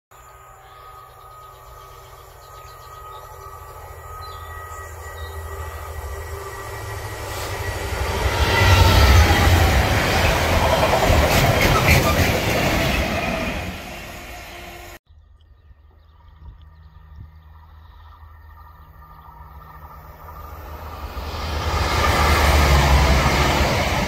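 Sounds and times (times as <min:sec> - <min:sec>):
falling whine: 0:00.2 - 0:11.3, 0:17.0 - 0:24.0
diesel locomotive rumble: 0:00.3 - 0:15.0, 0:18.9 - 0:24.0.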